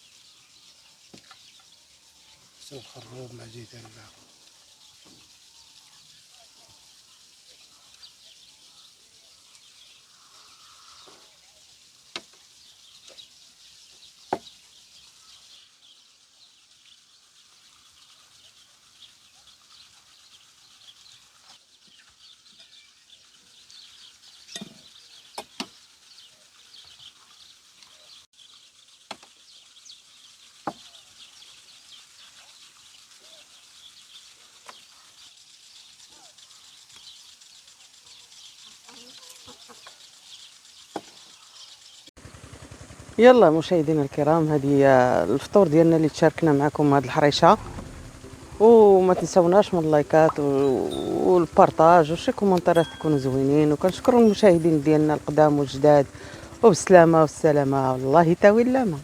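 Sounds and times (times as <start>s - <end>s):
small birds chirping: 0.0s - 42.2s, 43.2s - 59.0s
sharp knocks: 47.6s - 48.6s.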